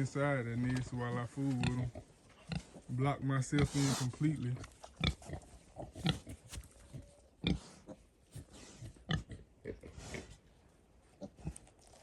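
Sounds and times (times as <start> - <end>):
pigs grunting: 1.5 - 10.4.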